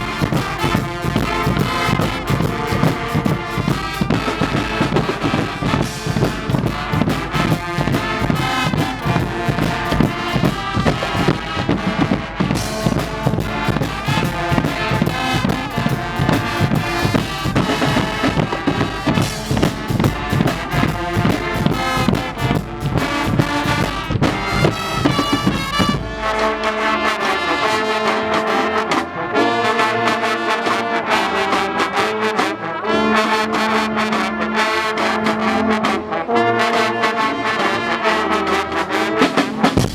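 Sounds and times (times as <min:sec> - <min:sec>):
heavy drumming: 0:00.0 - 0:27.8, 0:38.8 - 0:39.9
brass band playing: 0:00.0 - 0:39.9.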